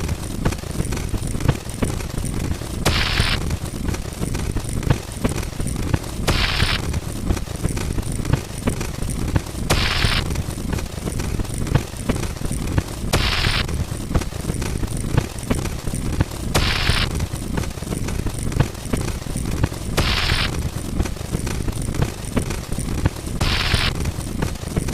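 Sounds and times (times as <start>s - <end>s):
rapid clicking rattle: 0.0s - 24.9s
short hiss bursts: 2.9s - 3.4s, 6.3s - 6.8s, 9.7s - 10.2s, 13.1s - 13.8s, 16.5s - 17.2s, 20.0s - 20.6s, 23.4s - 24.0s.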